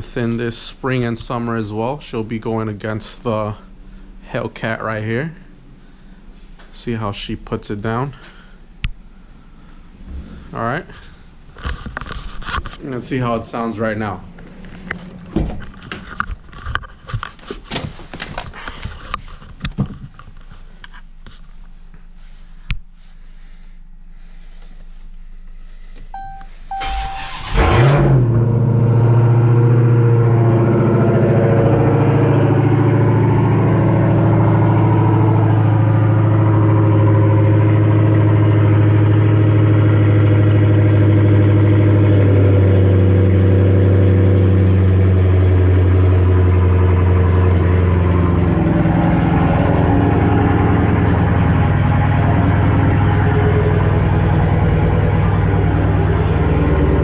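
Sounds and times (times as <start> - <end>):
engine cranking and starting: 26.7 - 28.6
loud car engine idling: 26.8 - 57.0.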